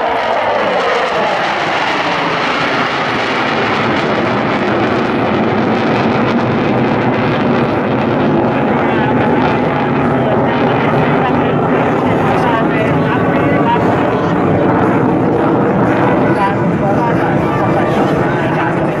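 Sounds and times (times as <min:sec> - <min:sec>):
jet engine roar: 0:00.0 - 0:19.0.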